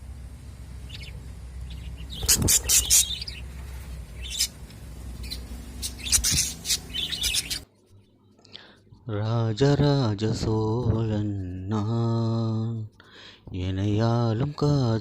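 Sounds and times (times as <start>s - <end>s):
steady low hum: 0.0s - 15.0s
budgerigars chirping: 0.8s - 7.7s.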